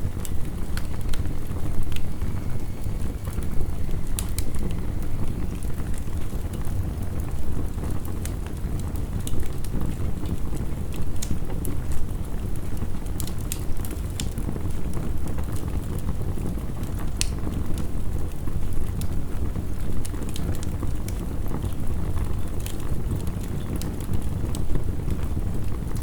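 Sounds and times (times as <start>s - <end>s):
heavy rain: 0.0s - 10.6s
wood fire crackling and popping: 0.0s - 26.0s.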